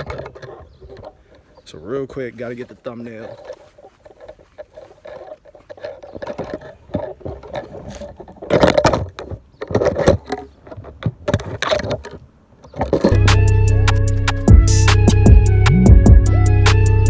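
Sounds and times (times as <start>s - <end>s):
rustling handling noises: 0.0s - 13.2s
music: 13.1s - 17.0s.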